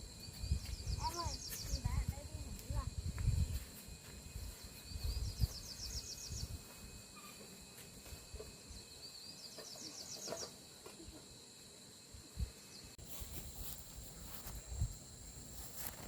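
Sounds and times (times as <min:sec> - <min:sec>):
high insect-like drone: 0:00.0 - 0:16.0
small bird singing: 0:00.1 - 0:02.2, 0:04.5 - 0:06.6, 0:08.7 - 0:10.6.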